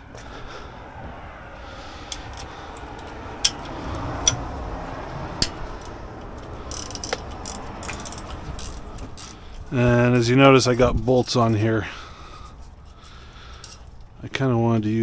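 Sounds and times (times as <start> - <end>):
low background hum: 0.0 - 15.0
metal parts clicking and tapping: 2.1 - 4.5, 5.4 - 9.6, 13.5 - 14.1.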